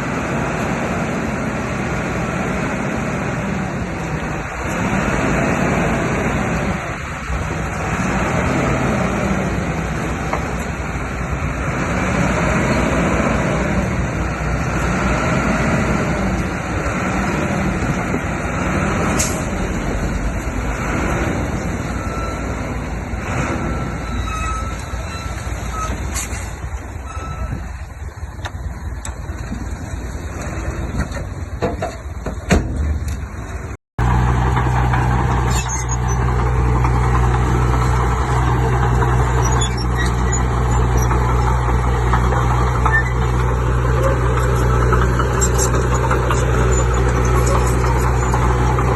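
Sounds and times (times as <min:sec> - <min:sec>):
heavy machinery diesel engine: 0:00.0 - 0:48.9.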